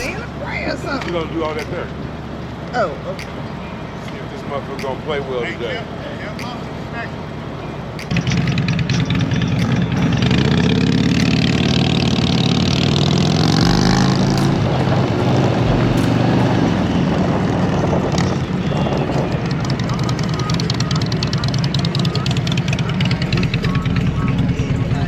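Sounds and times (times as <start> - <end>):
motorcycle engine accelerating: 8.0 - 18.6.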